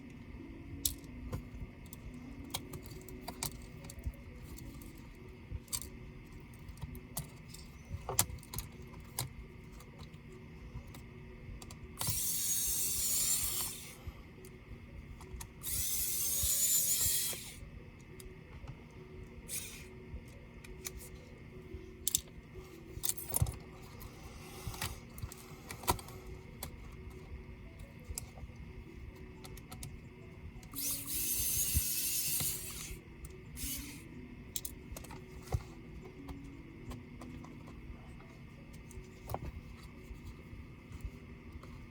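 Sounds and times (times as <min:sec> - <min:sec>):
electric screwdriver running: 0:12.0 - 0:14.0, 0:15.6 - 0:17.6, 0:30.7 - 0:33.0, 0:33.6 - 0:34.0.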